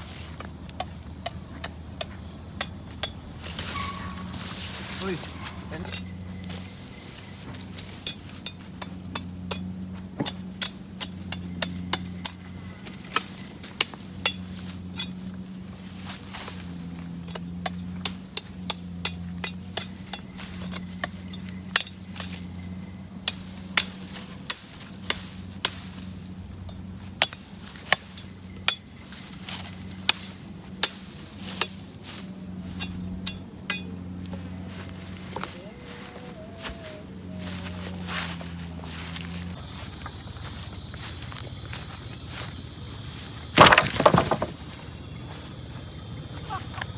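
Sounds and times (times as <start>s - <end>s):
steady low hum: 0.0s - 46.9s
sharp knocks: 43.5s - 44.7s.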